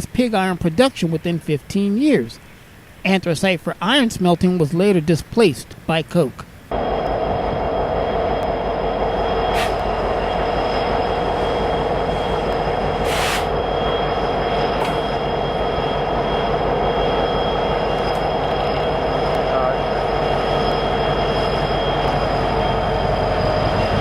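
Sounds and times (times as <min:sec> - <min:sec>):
train wheels rumbling on rail: 0:06.7 - 0:24.0
high-pitched wheel squeal: 0:06.8 - 0:24.0.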